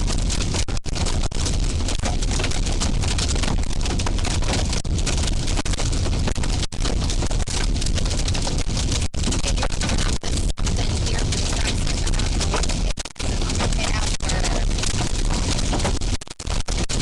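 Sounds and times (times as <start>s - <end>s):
heavy rain on car roof: 0.0s - 17.0s
low rumble of moving vehicle: 0.0s - 17.0s.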